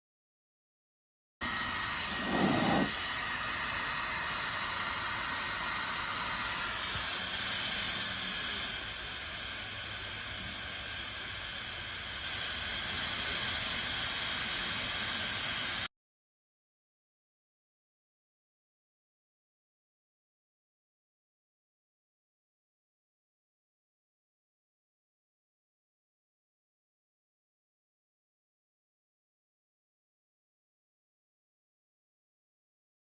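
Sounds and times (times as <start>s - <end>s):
hair dryer running: 1.4s - 15.9s.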